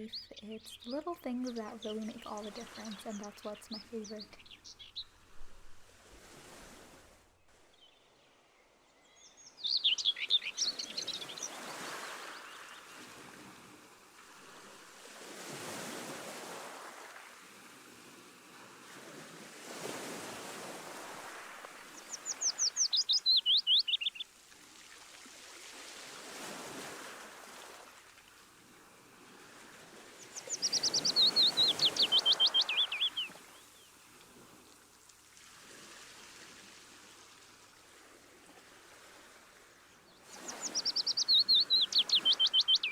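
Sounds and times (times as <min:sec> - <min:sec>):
ocean waves washing in: 0:00.2 - 0:07.7, 0:09.8 - 0:42.9
songbird rattling trills: 0:30.3 - 0:33.5, 0:40.3 - 0:42.9.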